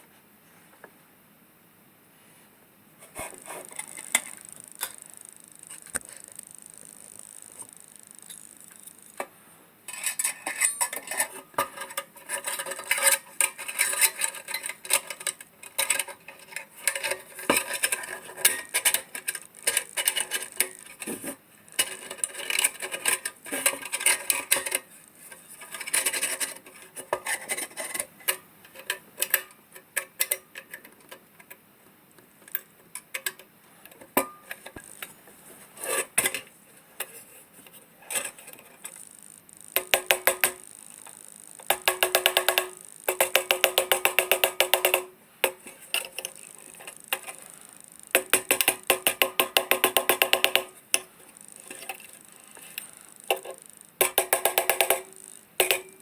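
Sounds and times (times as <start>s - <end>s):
metal clicks taps and scrapes: 9.9s - 31.6s, 32.4s - 35.1s, 39.8s - 47.4s, 48.1s - 56.0s.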